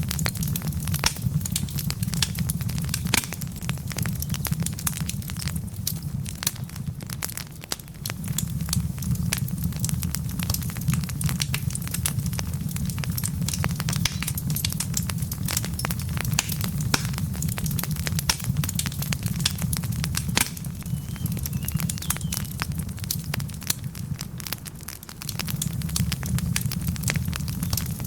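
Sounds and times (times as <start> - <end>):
burning logs snapping and popping: 0.0 - 28.0
low rumble of flames: 0.0 - 28.0.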